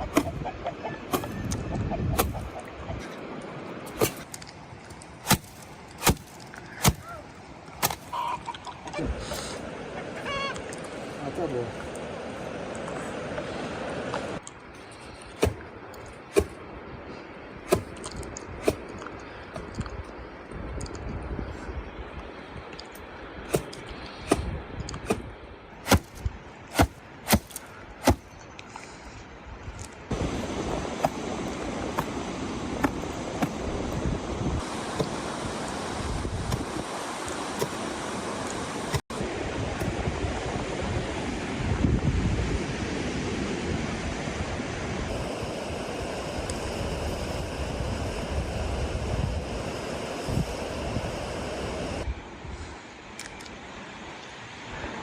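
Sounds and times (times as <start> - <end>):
wind buffeting microphone: 0.0 - 3.2, 15.4 - 22.8, 23.4 - 26.9, 29.4 - 38.0, 38.8 - 52.8
rushing wind: 0.0 - 55.0.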